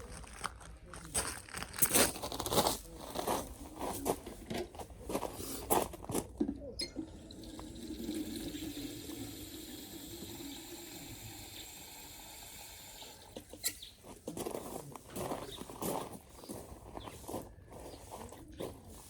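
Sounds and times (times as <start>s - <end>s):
tap water running: 6.8s - 13.8s.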